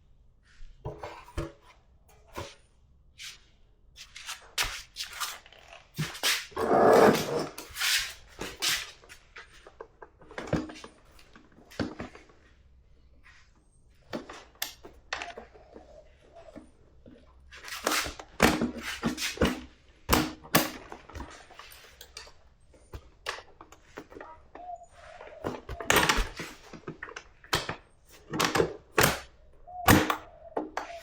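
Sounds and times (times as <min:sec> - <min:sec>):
tools and parts clanking: 0:00.8 - 0:02.6, 0:04.0 - 0:12.5, 0:13.2 - 0:31.0.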